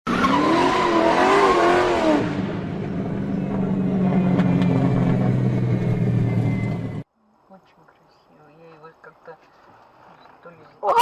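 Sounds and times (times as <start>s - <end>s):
car tyres squealing: 0.1s - 2.2s
car engine drone: 0.1s - 7.1s.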